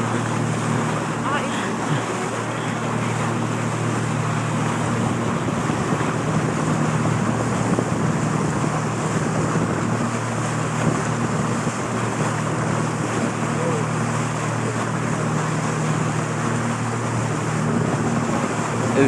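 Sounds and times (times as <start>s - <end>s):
motorboat engine running: 0.0s - 19.0s
water rushing along hull: 0.0s - 19.0s
wind buffeting microphone: 4.2s - 13.6s.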